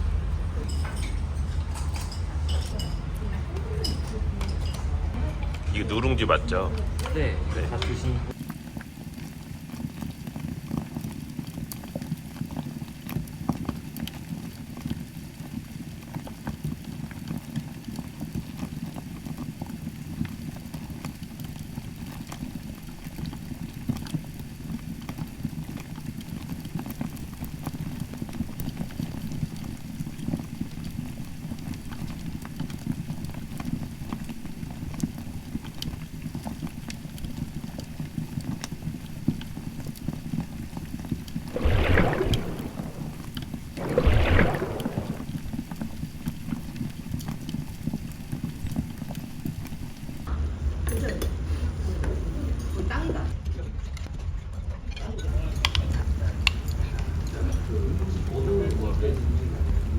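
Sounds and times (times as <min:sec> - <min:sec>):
pot of broth boiling hard: 0:05.1 - 0:50.3.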